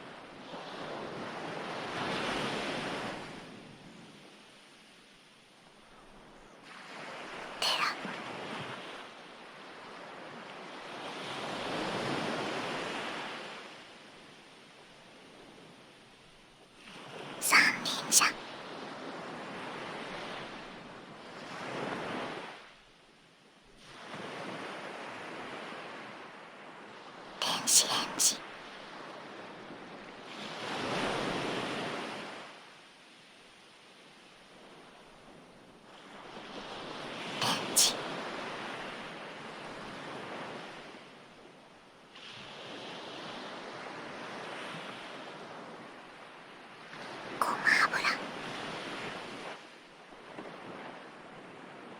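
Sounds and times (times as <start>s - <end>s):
ocean waves washing in: 0.0s - 4.9s.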